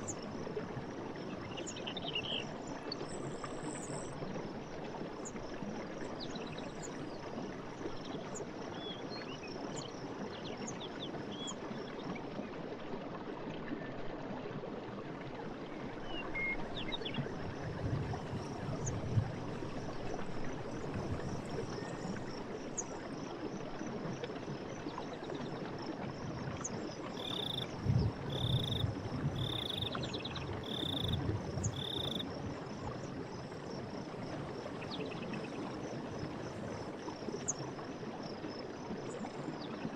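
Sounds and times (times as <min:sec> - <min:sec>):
running water: 0:00.0 - 0:39.9
frogs croaking: 0:26.1 - 0:38.8
faint chirps: 0:27.2 - 0:27.7, 0:28.3 - 0:28.8, 0:29.4 - 0:30.0, 0:30.6 - 0:32.2
frog rattling calls: 0:27.2 - 0:27.7, 0:28.3 - 0:28.8, 0:29.4 - 0:30.0, 0:30.6 - 0:32.2.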